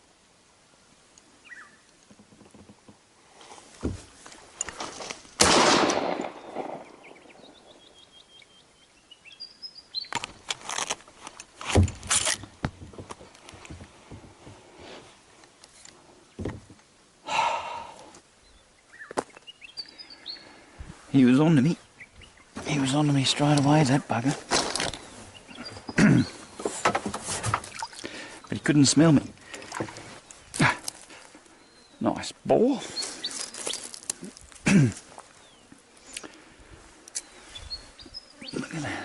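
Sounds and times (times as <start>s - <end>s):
birds chirping: 1.4s - 2.7s, 5.9s - 10.4s, 12.9s - 14.2s, 17.2s - 39.0s
knocks and crashing in brush: 3.8s - 7.0s, 10.1s - 14.5s, 16.4s - 16.8s, 22.6s - 25.1s, 25.7s - 27.9s
gunshot with echo: 5.4s - 7.3s.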